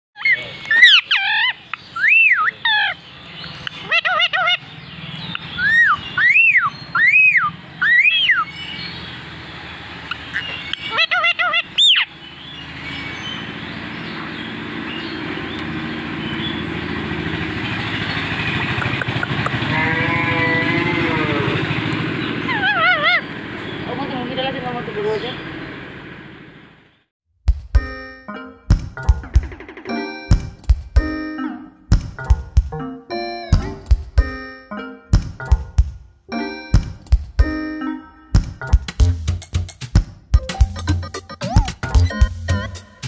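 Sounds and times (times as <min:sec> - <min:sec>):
parakeet whistled calls: 0:00.2 - 0:09.0, 0:10.1 - 0:15.2, 0:22.2 - 0:23.9.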